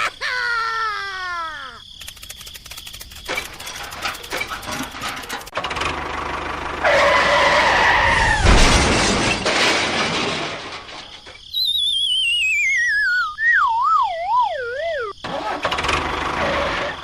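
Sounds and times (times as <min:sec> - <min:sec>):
cartoon squeal: 0:00.0 - 0:01.8, 0:11.5 - 0:15.2
loud cartoon crash: 0:06.9 - 0:11.4
wavering whistle falling in pitch: 0:11.5 - 0:15.2.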